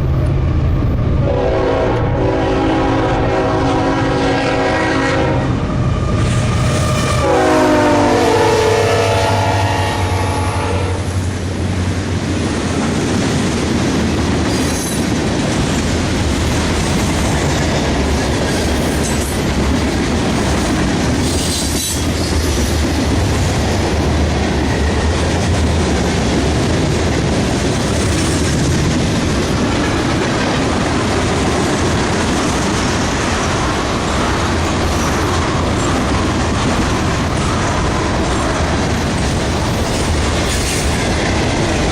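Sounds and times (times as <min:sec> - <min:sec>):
train engine hum: 0:00.0 - 0:41.9
locomotive horn: 0:01.2 - 0:11.2
train wheels clicking on rail joints: 0:11.1 - 0:41.9.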